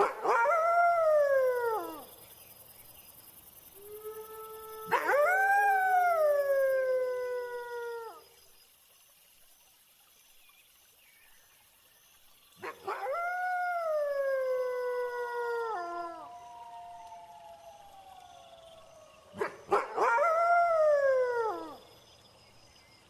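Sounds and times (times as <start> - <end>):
wolves howling: 0.0 - 2.0, 3.9 - 8.2, 12.6 - 21.8
crickets chirping: 0.0 - 23.0.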